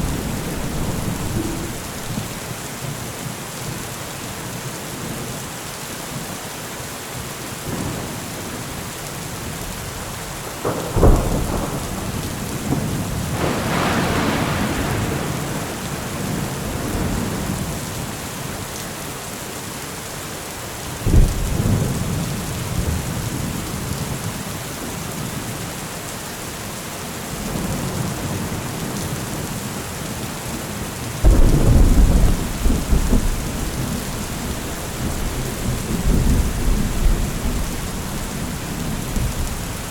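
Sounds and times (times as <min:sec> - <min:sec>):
thunder cracks: 0:00.0 - 0:02.6, 0:10.7 - 0:17.8, 0:31.2 - 0:39.9
rolling thunder rumble: 0:00.0 - 0:02.9, 0:10.6 - 0:18.1, 0:31.2 - 0:39.9
heavy rain: 0:00.0 - 0:39.9.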